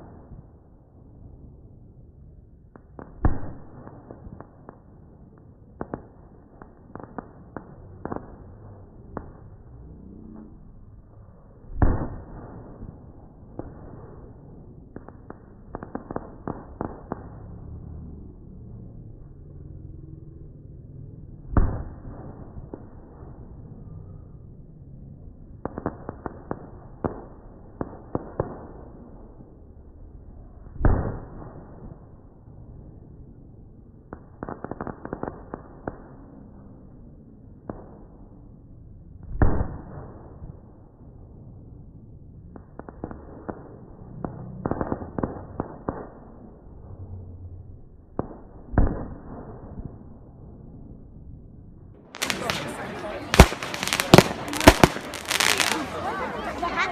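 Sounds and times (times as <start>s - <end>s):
fireworks cracking: 2.7s - 9.6s, 11.7s - 17.7s, 52.0s - 56.9s
loud firework bang: 52.2s - 56.0s.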